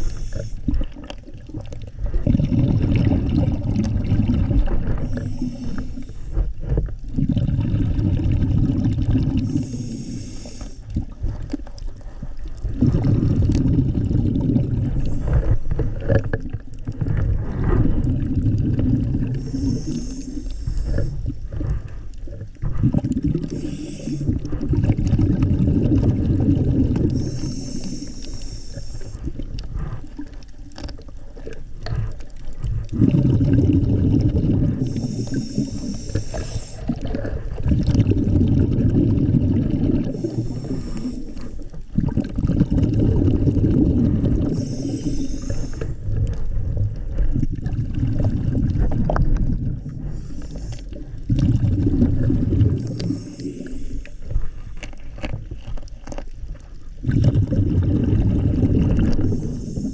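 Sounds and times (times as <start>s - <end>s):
regulator inhale hiss: 0.0s - 0.9s, 4.9s - 6.5s, 9.4s - 11.1s, 19.3s - 22.1s, 23.4s - 24.6s, 27.0s - 30.3s, 34.7s - 37.4s, 40.0s - 41.8s, 44.3s - 46.4s, 49.8s - 51.2s, 52.8s - 54.8s, 59.1s - 59.9s
exhaled bubbles burbling: 0.0s - 59.9s.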